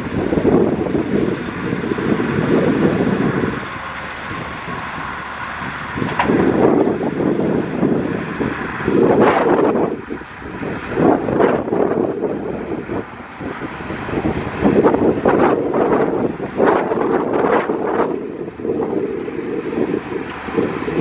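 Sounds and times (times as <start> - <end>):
diesel machinery engine rumble: 0.0 - 21.0.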